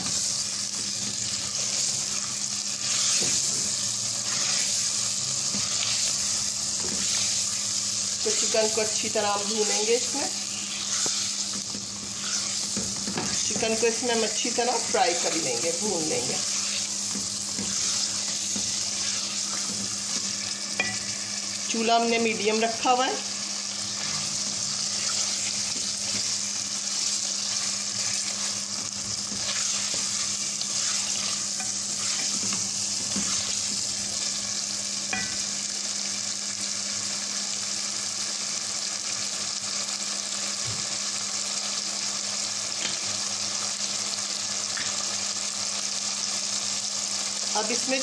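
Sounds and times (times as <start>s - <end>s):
spatula stirring in a pot: 0.0s - 21.4s, 23.7s - 34.4s, 35.1s - 35.4s
chicken sizzling in hot oil: 0.0s - 48.0s.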